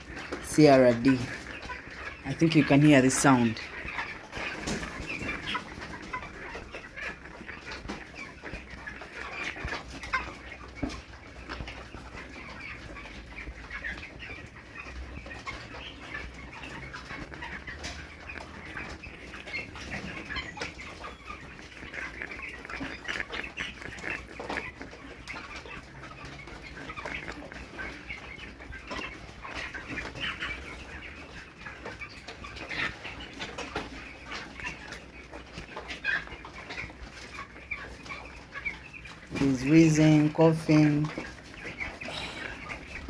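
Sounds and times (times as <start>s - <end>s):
chickens chirping: 0.0s - 43.0s
chickens coughing: 41.1s - 43.0s
chickens wheezing: 41.7s - 43.0s.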